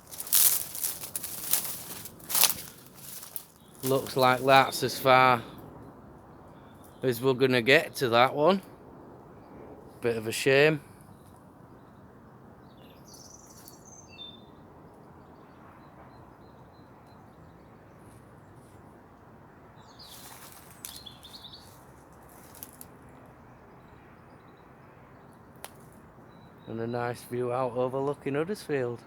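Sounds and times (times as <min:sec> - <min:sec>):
small birds chirping: 0:00.0 - 0:05.4, 0:11.1 - 0:18.8, 0:19.8 - 0:29.0
faint outdoor background noise: 0:00.0 - 0:29.0.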